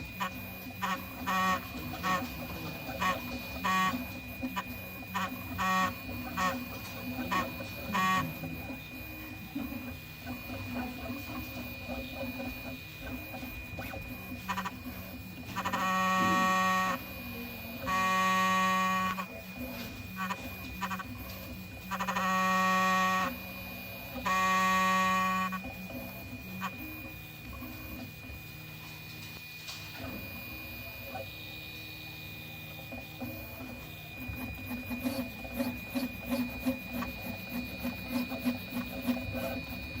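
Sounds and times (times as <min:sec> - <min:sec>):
loud buzzing tone: 0:00.0 - 0:08.4, 0:14.3 - 0:17.2, 0:17.8 - 0:19.4, 0:20.1 - 0:25.8
stepper motors pulsing: 0:00.0 - 0:28.2, 0:33.0 - 0:40.0
printer whirring and ticking: 0:00.0 - 0:40.0.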